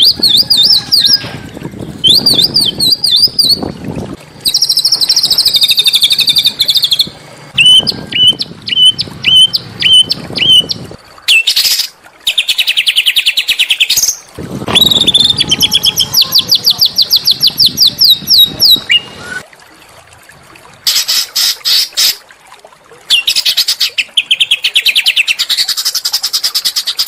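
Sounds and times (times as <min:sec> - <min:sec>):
songbird whistled song and trills: 0:02.0 - 0:03.7, 0:04.4 - 0:19.4, 0:23.1 - 0:27.0.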